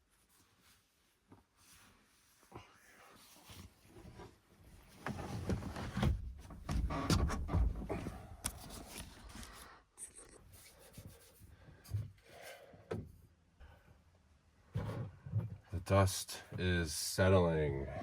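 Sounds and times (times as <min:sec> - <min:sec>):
rustling and scraping of objects: 0:00.0 - 0:13.3, 0:14.6 - 0:15.7.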